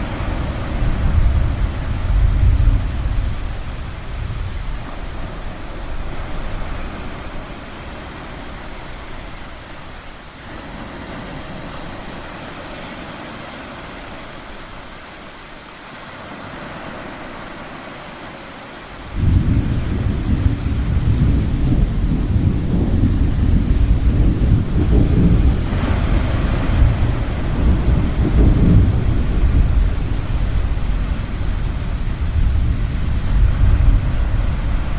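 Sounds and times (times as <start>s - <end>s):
thunder rumbling: 0.0s - 10.1s, 19.1s - 34.9s
ocean surf rushing: 0.0s - 34.9s.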